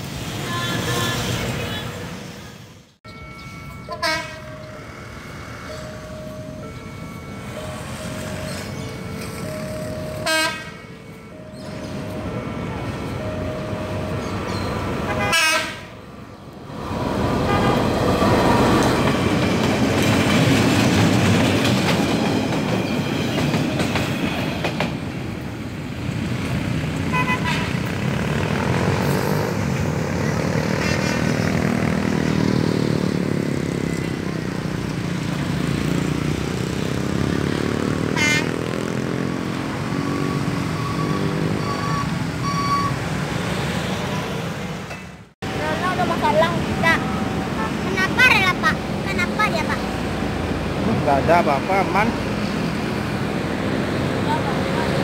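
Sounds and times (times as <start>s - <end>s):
train engine and rolling wagons: 0.0s - 55.0s
locomotive horn blasts: 3.9s - 4.7s, 10.1s - 10.9s, 15.0s - 16.0s, 17.4s - 18.7s, 27.0s - 27.9s, 38.1s - 38.6s.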